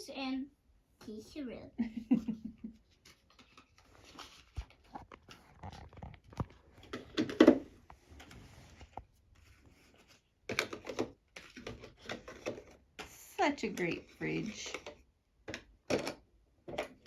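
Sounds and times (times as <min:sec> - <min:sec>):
toy pieces clicking and knocking: 0:10.5 - 0:17.0.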